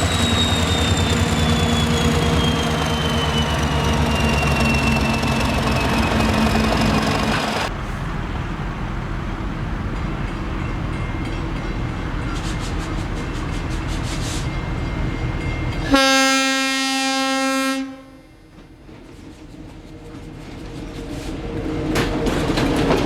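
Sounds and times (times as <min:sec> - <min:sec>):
locomotive rumbling past: 0:00.0 - 0:23.0
locomotive horn blast: 0:15.8 - 0:18.4.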